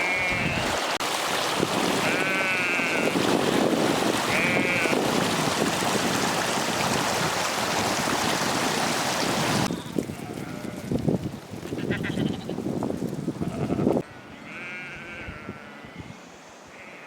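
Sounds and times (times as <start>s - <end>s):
sheep bleating: 0.0s - 0.7s, 2.0s - 3.1s, 4.3s - 4.9s, 11.8s - 12.6s, 13.4s - 16.0s, 16.7s - 17.0s
storm wind and rain: 0.1s - 14.0s.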